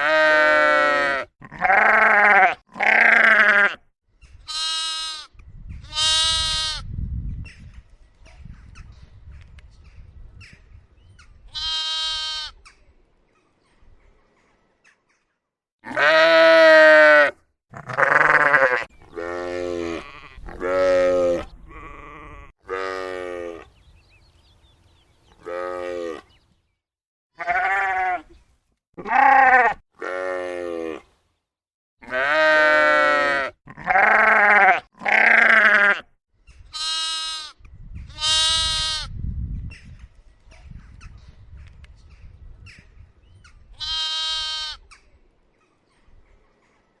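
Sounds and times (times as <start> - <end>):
sheep and lambs bleating: 0.0 - 3.8, 4.4 - 6.9, 11.5 - 12.6, 15.8 - 23.7, 25.4 - 26.4, 27.4 - 28.4, 29.0 - 31.0, 32.0 - 36.1, 36.7 - 39.1, 43.7 - 45.0.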